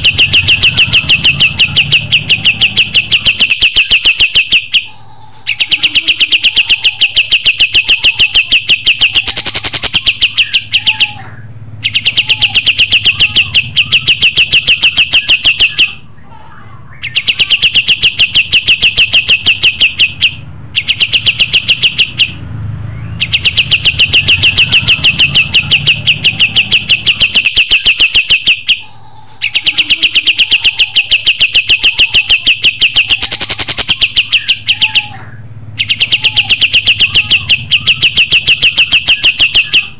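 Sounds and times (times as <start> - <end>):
songbird singing rapid chatter: 0.0 - 4.9, 5.5 - 16.0, 17.0 - 39.9.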